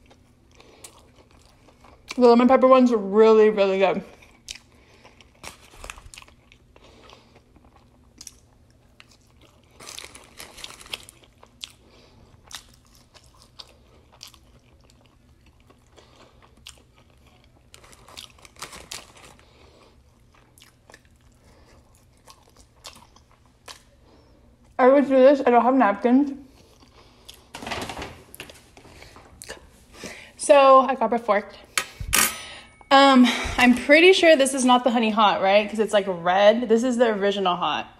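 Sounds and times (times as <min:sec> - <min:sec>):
person chewing crispy food: 0:00.0 - 0:02.2, 0:04.1 - 0:24.8, 0:26.5 - 0:27.5.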